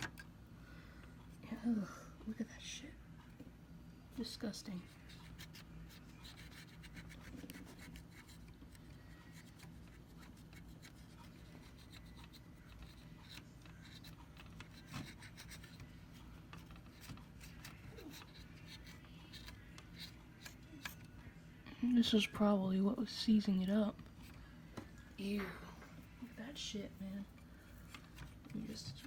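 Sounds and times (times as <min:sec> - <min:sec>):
rubbing and scratching: 0:04.7 - 0:21.1.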